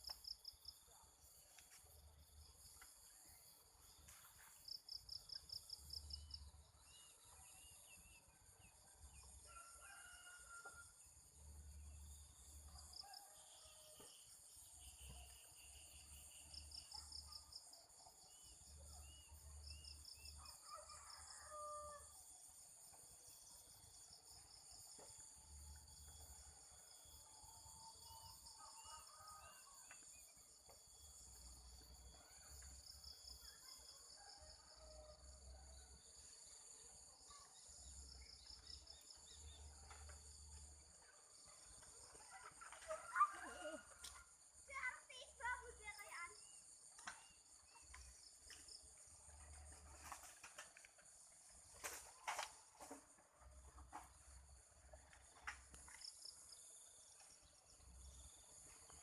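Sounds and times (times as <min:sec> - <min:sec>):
insects droning: 0:00.0 - 0:59.0
rooster crowing: 0:09.4 - 0:11.0, 0:20.4 - 0:22.2.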